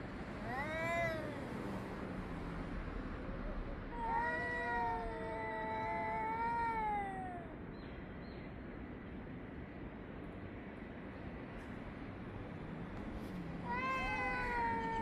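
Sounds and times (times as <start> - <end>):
cat yowling: 0.4 - 1.6, 3.4 - 7.6, 13.6 - 15.0.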